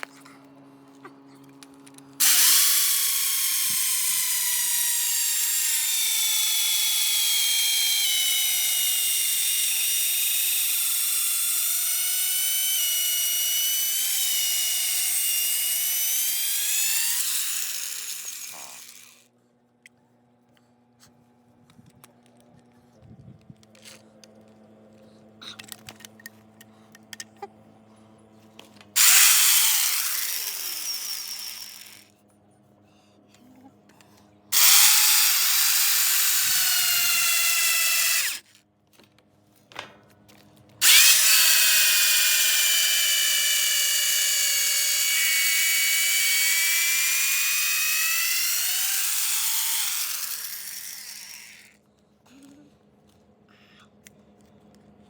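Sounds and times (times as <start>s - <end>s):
power drill boring into wood: 2.2s - 19.2s, 29.0s - 32.1s, 34.5s - 38.5s, 40.8s - 51.8s.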